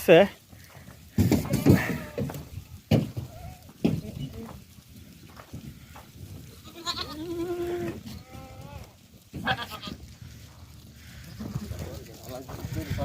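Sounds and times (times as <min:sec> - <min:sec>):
goat bleating: 0:01.3 - 0:02.5, 0:06.5 - 0:10.1.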